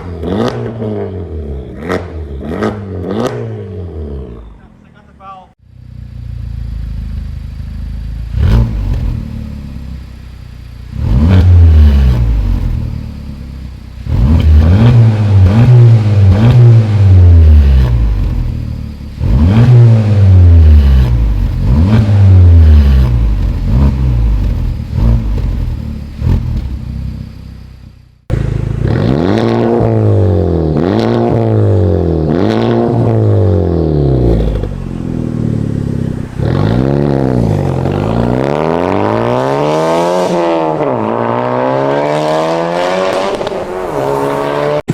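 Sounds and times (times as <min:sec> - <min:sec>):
car engine revving in blips: 0:00.0 - 0:04.7, 0:07.7 - 0:10.0, 0:10.8 - 0:44.9.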